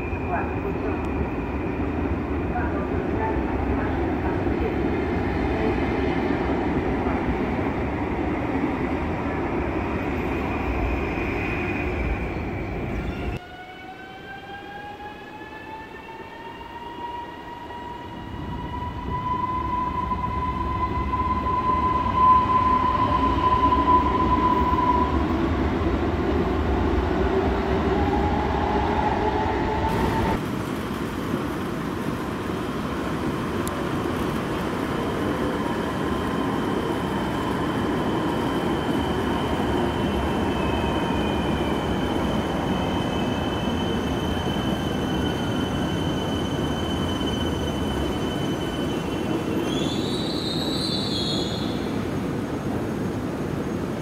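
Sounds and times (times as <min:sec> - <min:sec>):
train high whine: 0:00.0 - 0:54.0
train wheels rumbling on track: 0:14.9 - 0:54.0.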